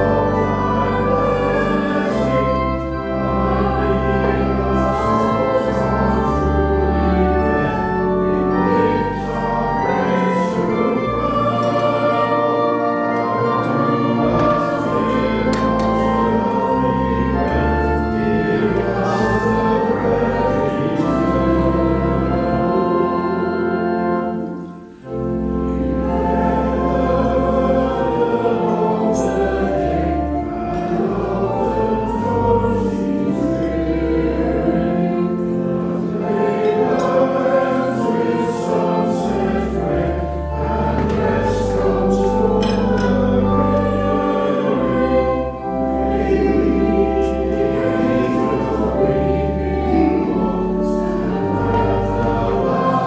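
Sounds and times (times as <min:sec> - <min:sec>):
congregation singing a hymn: 0:00.0 - 0:53.0
pipe organ: 0:00.0 - 0:53.0.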